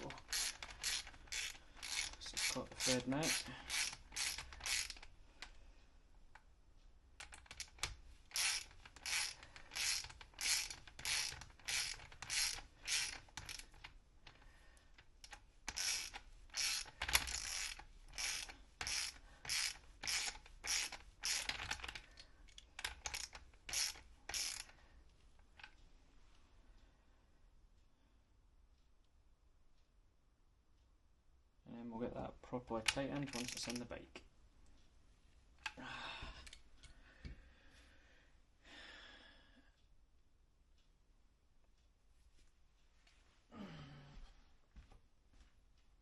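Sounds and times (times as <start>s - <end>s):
ratchet wrench clicking: 0.0s - 5.1s, 7.2s - 13.8s, 15.2s - 24.8s, 33.2s - 33.8s.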